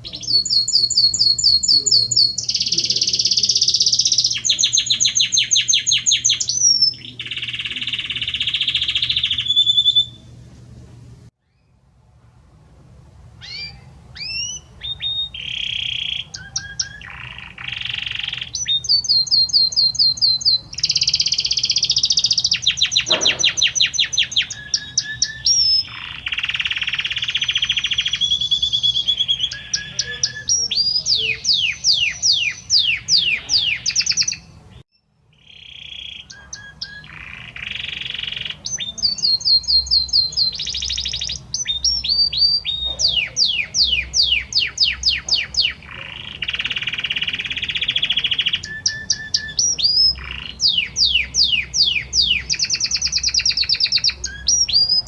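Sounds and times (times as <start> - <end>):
canary singing trills: 0.0 - 11.8, 13.4 - 55.0.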